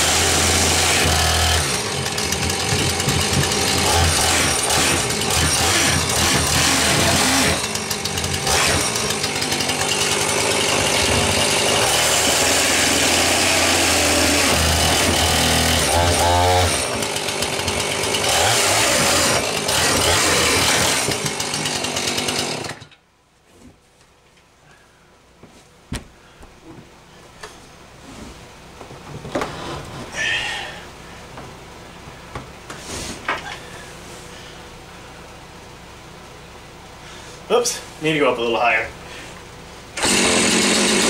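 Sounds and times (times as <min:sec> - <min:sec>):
chainsaw cutting wood: 0:00.0 - 0:23.0, 0:40.0 - 0:41.0.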